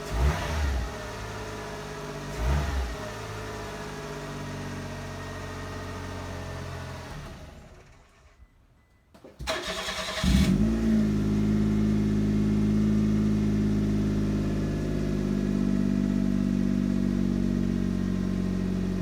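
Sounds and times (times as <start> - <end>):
engine starter cranking: 9.4 - 10.6.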